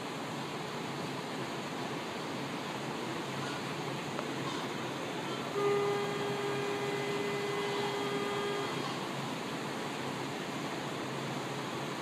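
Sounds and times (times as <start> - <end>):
steady hiss: 0.0 - 12.0
train warning tone: 5.2 - 9.1.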